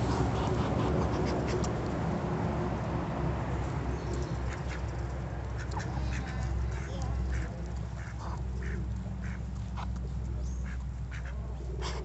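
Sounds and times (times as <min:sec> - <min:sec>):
ducks and hens calling: 0:04.3 - 0:12.0.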